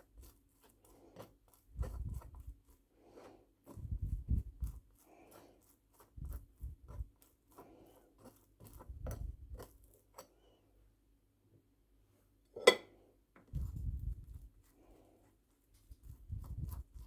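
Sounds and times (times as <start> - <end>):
kitchenware clicking and knocking: 12.6 - 12.9.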